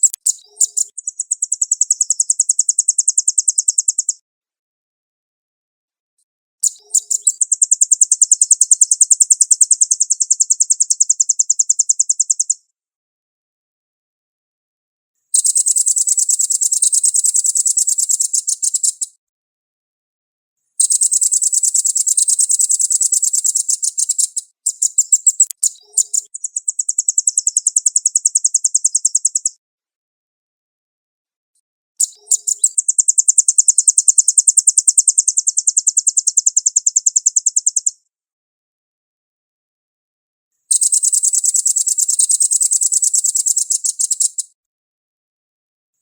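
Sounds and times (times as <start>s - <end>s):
bird singing rapid high trills: 15.4s - 19.1s, 20.8s - 29.5s, 32.0s - 37.9s, 40.7s - 44.4s.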